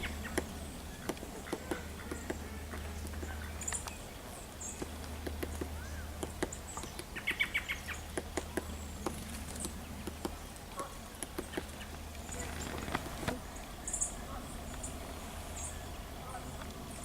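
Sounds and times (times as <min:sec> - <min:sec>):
small birds chirping: 0:00.0 - 0:17.0
steady low rumble: 0:11.4 - 0:17.0.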